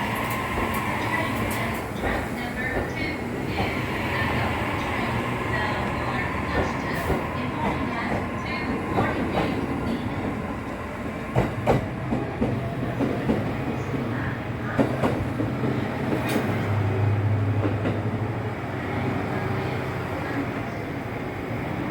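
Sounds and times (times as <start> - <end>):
train wheels knocking on rails: 0.0 - 14.0, 14.7 - 16.6.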